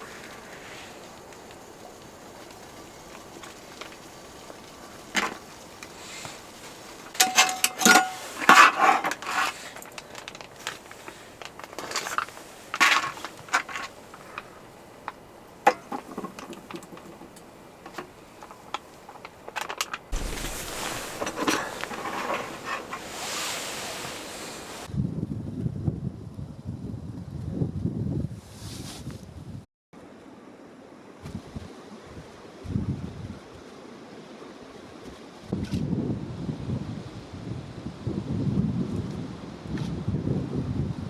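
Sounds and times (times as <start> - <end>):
cookware and utensils clattering: 6.9 - 14.6, 15.6 - 24.9.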